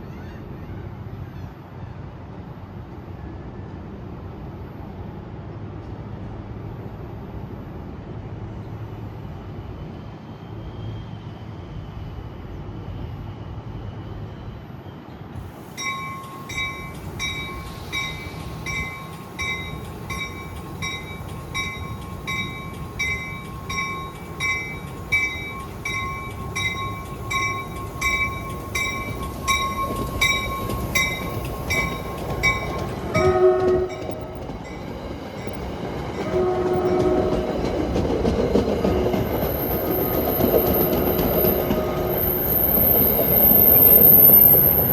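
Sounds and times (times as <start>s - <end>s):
train rumbling: 0.0s - 44.9s
railway bell ringing: 15.5s - 44.9s
steady high tone: 15.6s - 44.9s
train horn: 33.1s - 34.6s, 36.2s - 37.7s.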